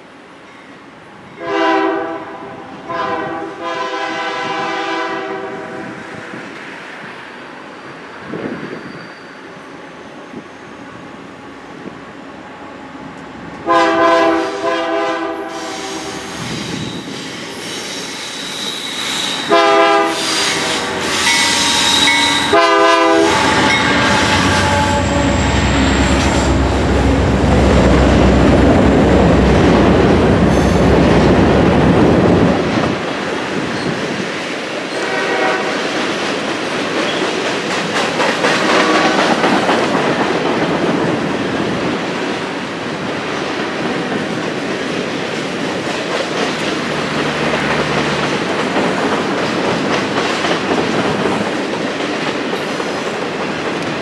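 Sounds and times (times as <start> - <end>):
train horn blasts: 1.4 - 6.1, 13.6 - 16.3, 19.3 - 27.6, 34.9 - 36.0, 38.6 - 39.4
faint wheel squeal: 7.4 - 10.8, 15.6 - 19.5
train wheels clattering: 15.7 - 31.8, 35.8 - 41.0, 45.4 - 54.0
locomotive engine rumble: 20.5 - 32.8.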